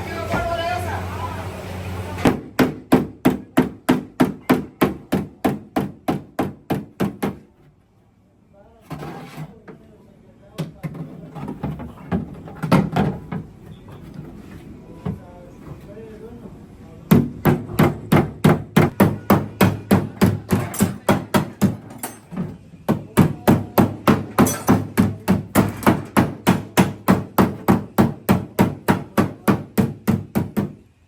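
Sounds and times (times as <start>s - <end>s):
hammer beating sheet metal: 17.1s - 22.2s, 22.9s - 30.8s.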